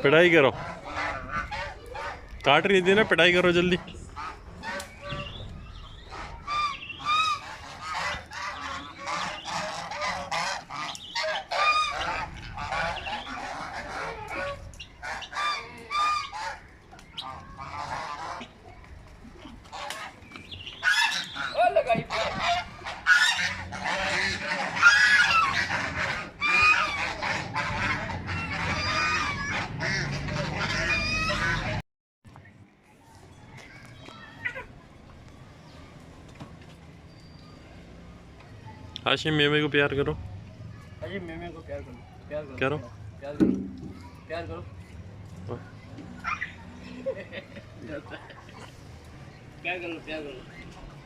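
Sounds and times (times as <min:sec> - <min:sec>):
geese honking: 0:00.0 - 0:18.6, 0:19.6 - 0:31.8.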